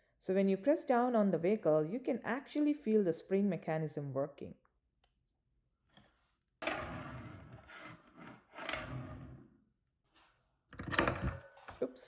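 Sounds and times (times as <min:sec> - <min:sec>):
toy car scraping on surface: 0:06.6 - 0:09.5.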